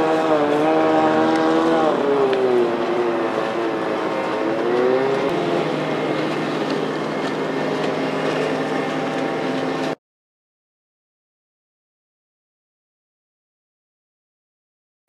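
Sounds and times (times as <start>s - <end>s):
outboard motor running: 0.0s - 10.0s.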